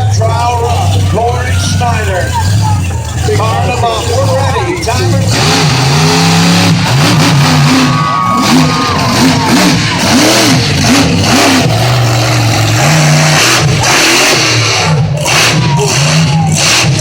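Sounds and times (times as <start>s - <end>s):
monster truck engine revving: 0.0s - 17.0s.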